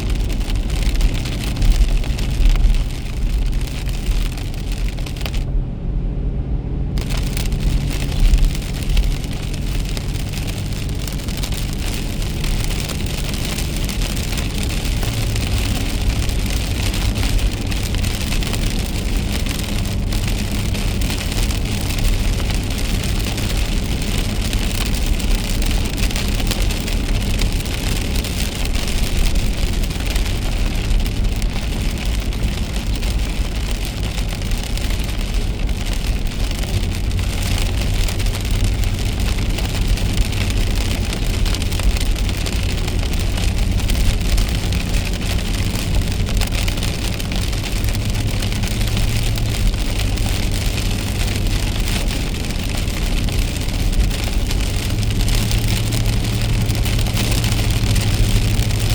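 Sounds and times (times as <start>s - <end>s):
rain hissing and ticking on car: 0.0s - 5.6s, 7.0s - 58.9s
car rumbling on wet road: 0.0s - 58.9s.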